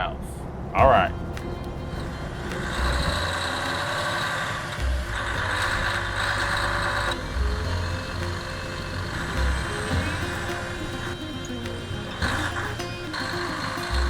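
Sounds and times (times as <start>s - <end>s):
road noise: 0.0s - 14.0s
diesel truck engine: 0.4s - 14.0s.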